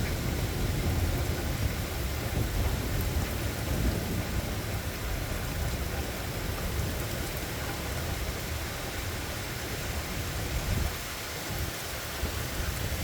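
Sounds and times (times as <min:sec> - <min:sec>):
thunder rumbling: 0:00.0 - 0:09.2
steady rain falling: 0:00.0 - 0:13.0.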